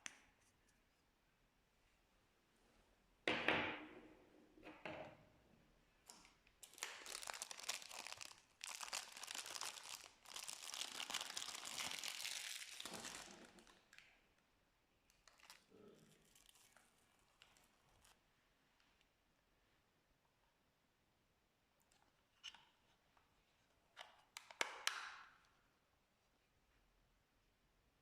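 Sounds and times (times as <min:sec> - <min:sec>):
slime crackling and popping: 0:06.6 - 0:13.7.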